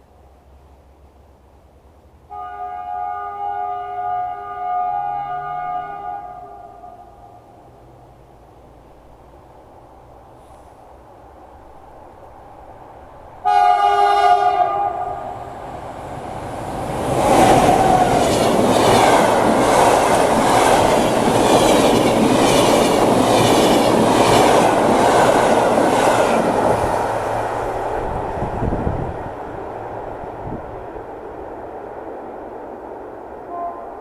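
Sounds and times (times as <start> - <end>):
train passing with loud rush: 0.0 - 34.0
train horn blast: 2.3 - 7.4, 13.4 - 15.4, 33.5 - 34.0
train wheels clickety-clack: 16.9 - 27.1.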